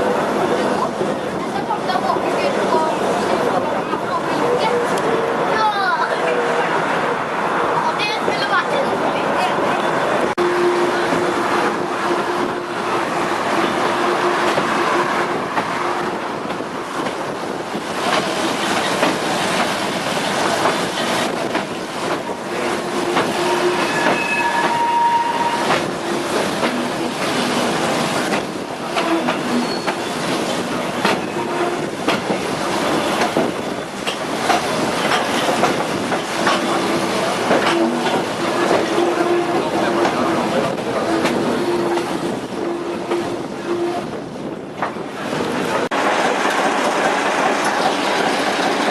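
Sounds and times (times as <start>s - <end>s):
train wheels rumbling on rail: 0.0s - 48.9s
high wheel squeals: 23.3s - 25.8s, 29.1s - 30.2s.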